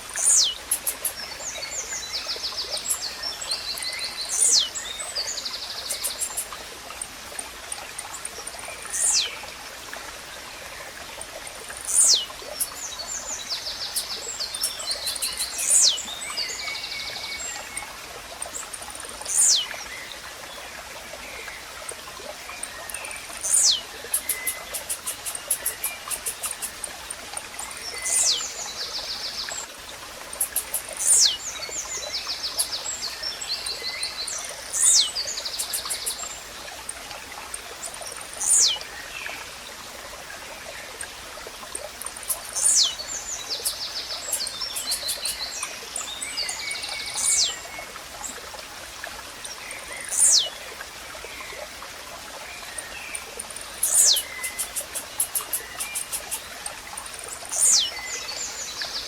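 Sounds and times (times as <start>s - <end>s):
nature ambience hiss: 0.0s - 59.0s
other birds chirping: 0.1s - 1.3s, 5.7s - 6.6s, 11.7s - 12.8s, 13.7s - 16.2s, 19.3s - 19.7s, 22.6s - 28.5s, 30.3s - 31.4s, 34.7s - 36.3s, 42.0s - 45.6s, 47.1s - 47.6s, 52.8s - 57.9s.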